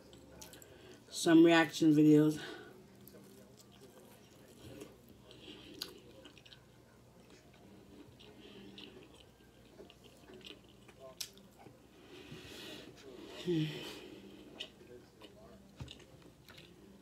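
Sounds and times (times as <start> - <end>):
chewing fried chicken: 2.9 - 12.2, 14.0 - 17.0.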